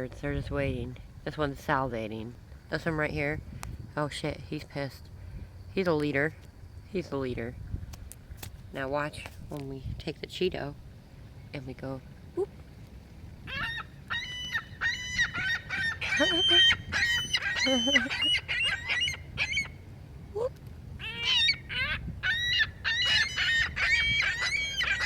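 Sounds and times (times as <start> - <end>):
seagulls calling: 13.4 - 19.8, 20.4 - 25.0.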